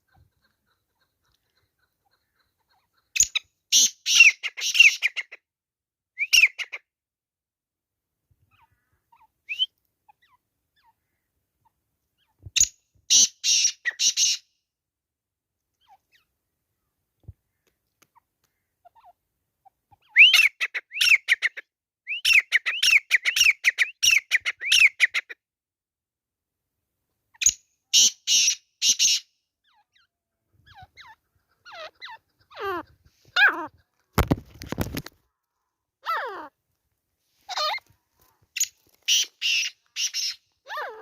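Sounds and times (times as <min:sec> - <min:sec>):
bird whistled calls: 0:09.5 - 0:09.8, 0:20.1 - 0:21.3.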